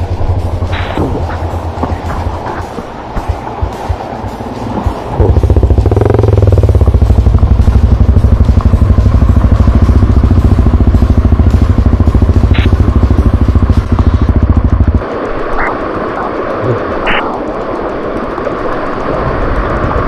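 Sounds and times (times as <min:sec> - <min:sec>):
motorcycle engine chugging: 0:00.0 - 0:15.9.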